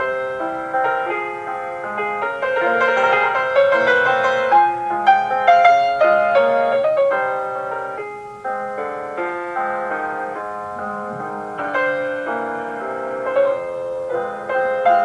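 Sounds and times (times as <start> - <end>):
solo piano classical piece: 0.0 - 15.0.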